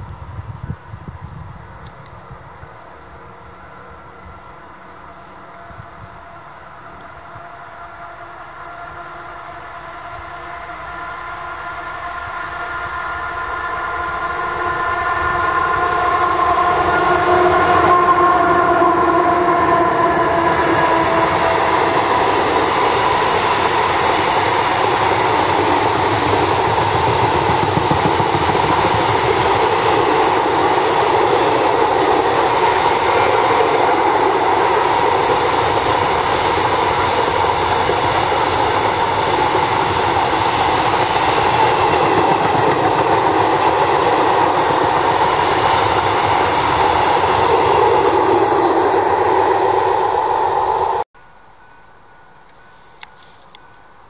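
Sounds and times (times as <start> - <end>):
electric locomotive passing: 0.0 - 54.0
chord of steady horn tones: 3.0 - 27.5
wagon wheels rumbling on rails: 17.3 - 51.0.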